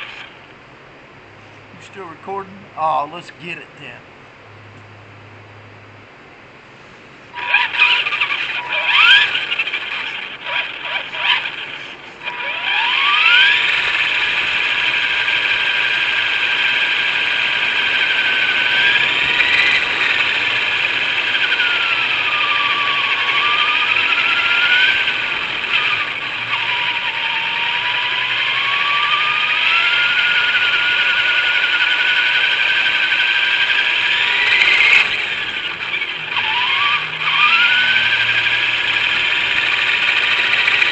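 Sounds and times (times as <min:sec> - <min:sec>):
rc car motor whining: 0:00.0 - 0:00.5, 0:07.3 - 0:40.9.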